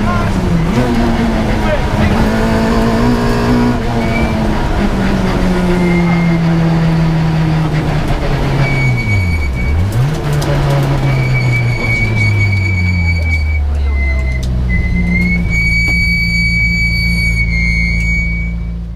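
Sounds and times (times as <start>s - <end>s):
rally car engine pulling hard: 0.0s - 18.9s
high steady whistle: 11.1s - 18.8s.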